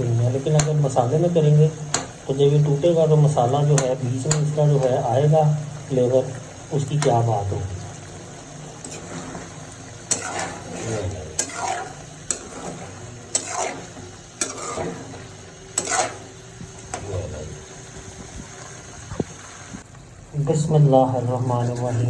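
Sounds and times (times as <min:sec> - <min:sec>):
light sizzle: 0:00.0 - 0:22.0
spoon stirring in a pot: 0:07.8 - 0:16.3.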